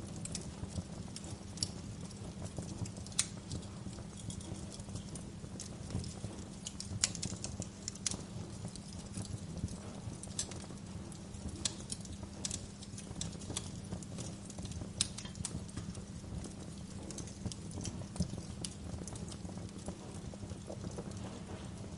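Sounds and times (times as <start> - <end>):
fire pops and snaps: 0.0 - 21.9
low rumble of burning: 0.0 - 21.9.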